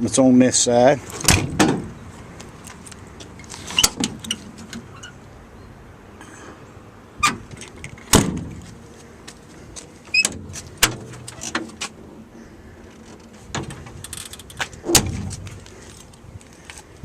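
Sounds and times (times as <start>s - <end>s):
metal doors clanking shut: 1.2s - 1.9s, 8.1s - 8.6s.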